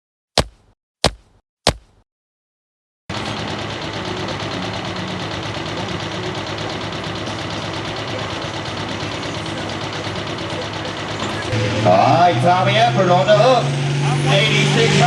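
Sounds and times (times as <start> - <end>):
tractor diesel engine running: 3.1 - 15.0.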